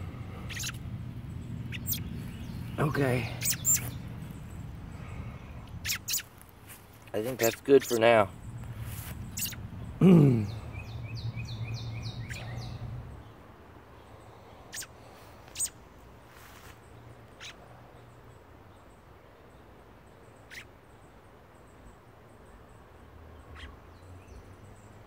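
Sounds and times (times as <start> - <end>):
bird calling high notes: 0.0 - 6.4, 7.3 - 12.9
low steady hum: 0.0 - 16.3.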